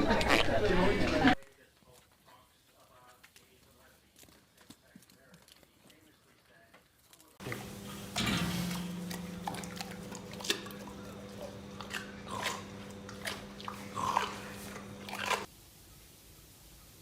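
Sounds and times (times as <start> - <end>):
crunching and clicking: 1.5 - 15.5
steady low hum: 7.4 - 15.5.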